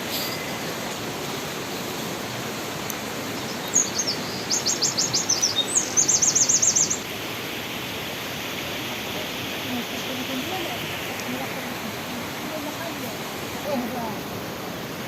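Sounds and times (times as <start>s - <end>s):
water rushing in stream: 0.0s - 15.0s
songbird chirping and trilling: 3.2s - 7.1s.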